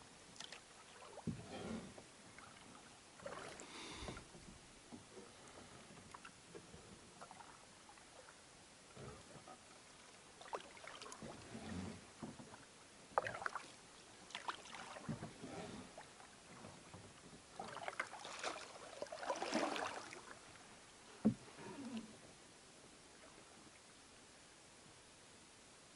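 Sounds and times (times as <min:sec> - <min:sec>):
water splashes and drips: 0:00.3 - 0:01.3, 0:02.3 - 0:04.2, 0:09.9 - 0:11.5, 0:13.2 - 0:15.4, 0:17.6 - 0:20.6
canoe paddle strokes in water: 0:00.4 - 0:08.4, 0:09.1 - 0:21.6.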